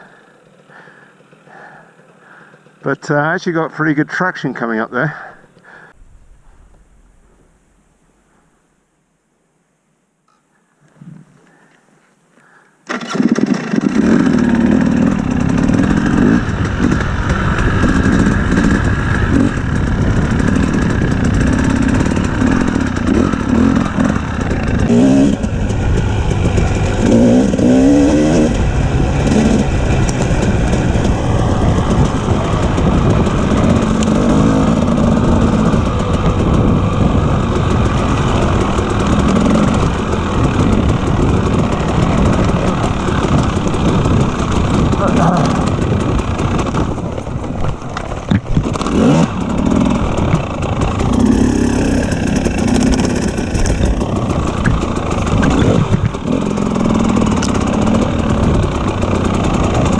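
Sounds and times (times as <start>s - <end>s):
dirt bike engine revving: 12.9s - 59.9s.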